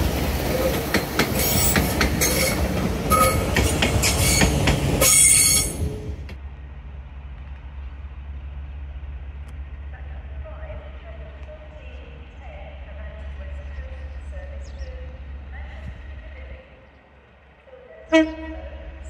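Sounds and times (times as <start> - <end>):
train wheels clicking over joints: 0.0 - 6.4
wheel squealing on rail: 0.5 - 6.1
low steady rumble: 6.4 - 19.0.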